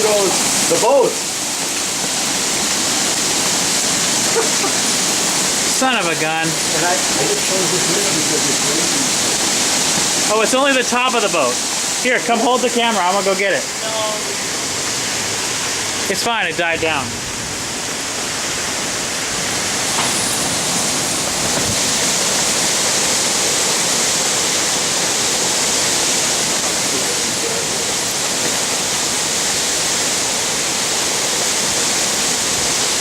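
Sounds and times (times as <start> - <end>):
heavy rain and wind: 0.0 - 33.0.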